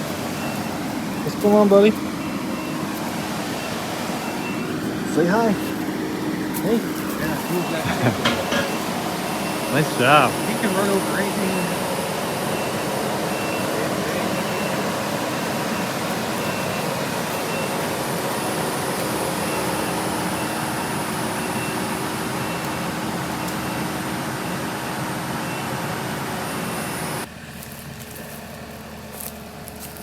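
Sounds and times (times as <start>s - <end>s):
reversing beeper: 0.0s - 27.3s
heavy vehicle engine running: 0.0s - 30.0s.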